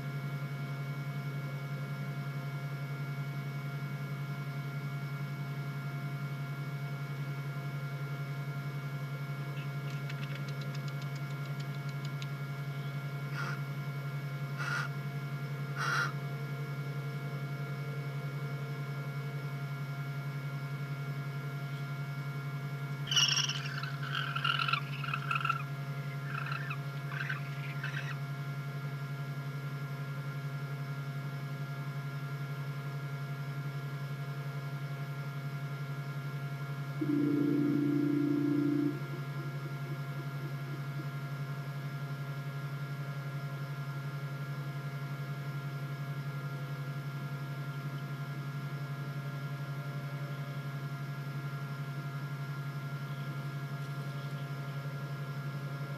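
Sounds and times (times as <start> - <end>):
electrical hum: 0.0 - 55.9
owls squeaky calls: 13.3 - 13.6, 14.6 - 14.9, 15.8 - 16.2, 23.1 - 28.2.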